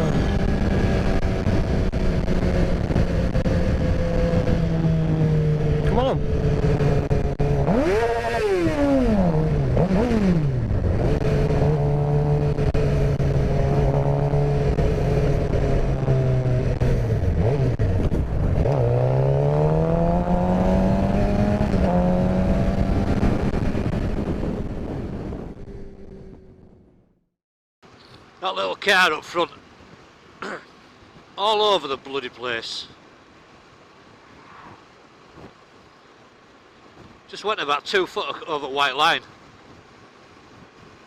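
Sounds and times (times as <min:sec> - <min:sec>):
motorcycle engine revving: 0:00.0 - 0:27.2
wind and road noise: 0:00.0 - 0:41.0.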